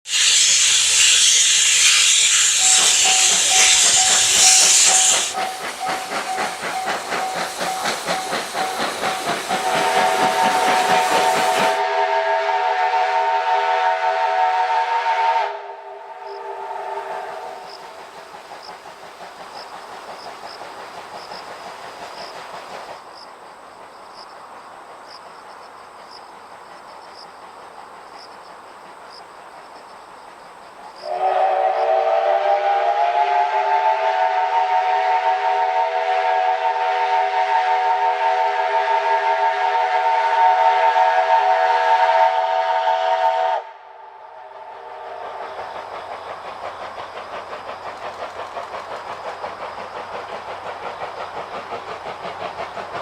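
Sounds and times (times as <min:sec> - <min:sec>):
steam locomotive whistle: 0:00.1 - 0:17.9, 0:31.0 - 0:45.6
steady hiss: 0:00.1 - 0:53.0.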